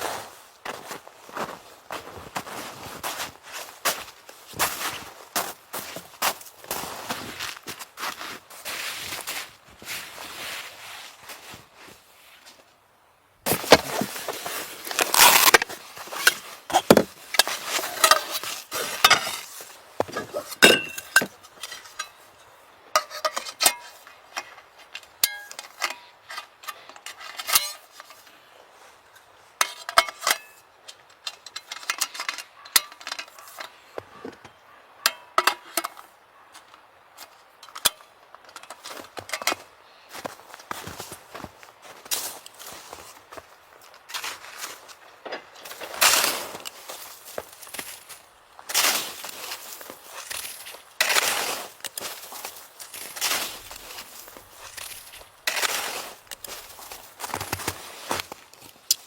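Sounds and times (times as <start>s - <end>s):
hard objects clinking and clattering: 14.9s - 22.2s.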